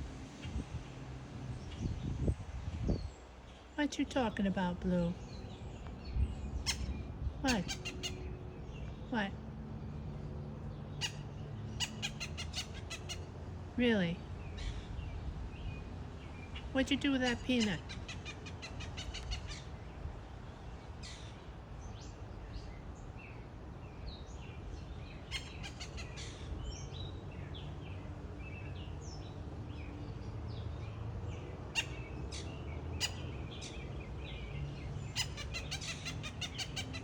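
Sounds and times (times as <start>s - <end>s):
low outdoor rumble: 0.0s - 37.0s
blue jay chirps: 5.2s - 8.4s, 11.0s - 13.3s, 16.4s - 19.8s, 24.7s - 27.6s, 31.7s - 33.8s, 34.8s - 37.0s.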